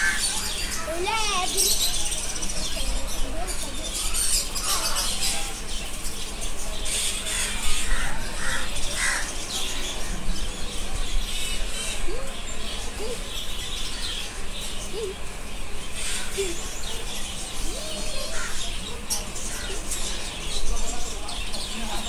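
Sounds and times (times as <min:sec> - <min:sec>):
crows calling: 0:00.0 - 0:01.3, 0:07.3 - 0:09.4, 0:18.2 - 0:18.8, 0:19.5 - 0:19.9
birds chirping: 0:00.0 - 0:22.0
busy market din: 0:00.0 - 0:22.0.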